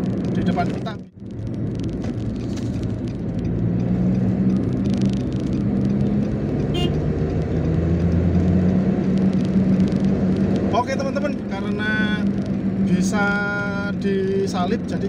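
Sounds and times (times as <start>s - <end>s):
car engine hum: 0.0s - 15.0s
road noise inside car: 0.0s - 15.0s.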